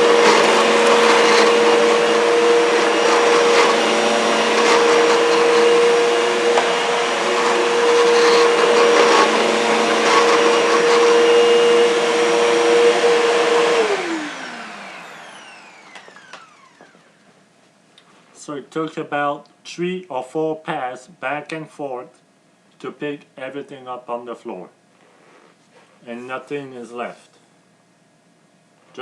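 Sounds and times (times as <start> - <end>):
vacuum cleaner motor whine: 0.0 - 17.4.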